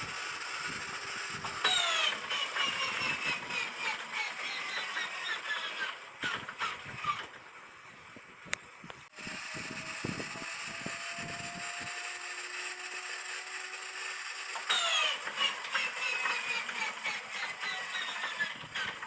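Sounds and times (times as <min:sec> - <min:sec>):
engine turning over knocks: 0:00.0 - 0:07.5, 0:14.3 - 0:19.0
flywheel whine rising: 0:00.0 - 0:19.0.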